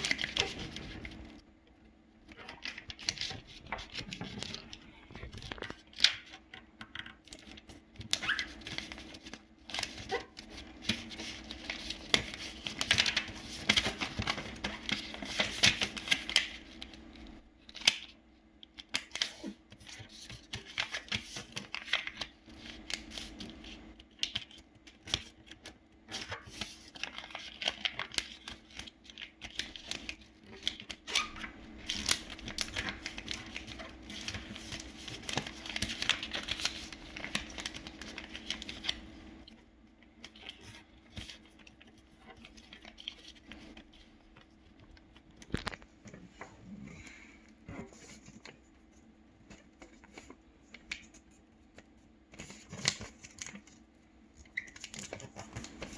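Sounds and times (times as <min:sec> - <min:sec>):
paper being folded and creased: 0:00.0 - 0:01.4, 0:02.2 - 0:46.5, 0:47.7 - 0:53.8, 0:54.4 - 0:55.9
faint steady hum: 0:00.0 - 0:55.9.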